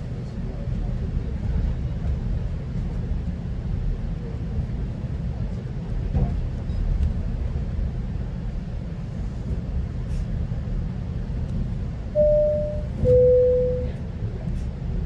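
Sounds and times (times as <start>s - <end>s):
train rumbling along track: 0.0s - 15.0s
falling two-note chime: 12.2s - 13.9s.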